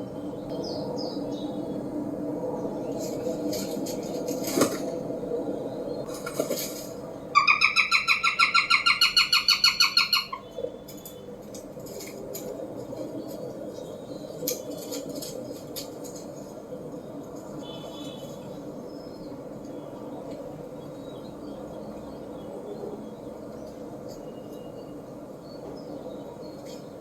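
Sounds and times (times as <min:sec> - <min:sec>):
falcon cacking call: 0:07.4 - 0:10.4.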